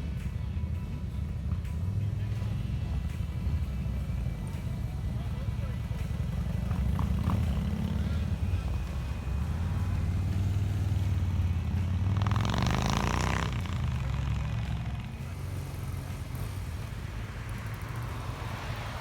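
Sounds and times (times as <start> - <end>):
motorcycle engines rumbling: 0.0 - 19.0
bright loud engine rev: 9.9 - 16.6.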